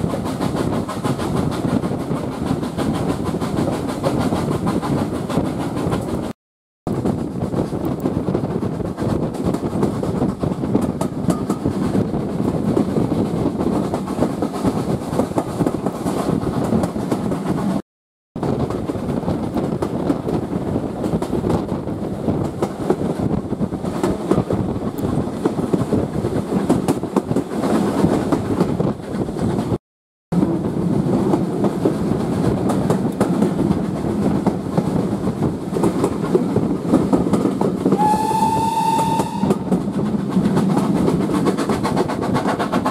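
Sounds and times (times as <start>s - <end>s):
train rumbling: 0.0s - 17.8s, 18.4s - 42.9s
wheel clatter over rails: 39.2s - 42.9s.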